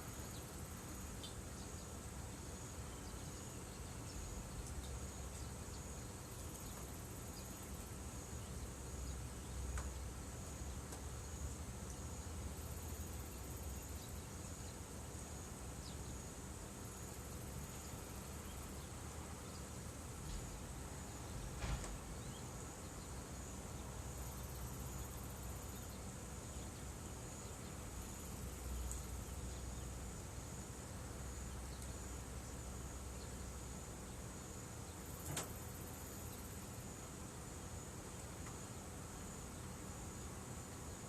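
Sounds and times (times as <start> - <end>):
insects trilling: 0.0 - 41.0.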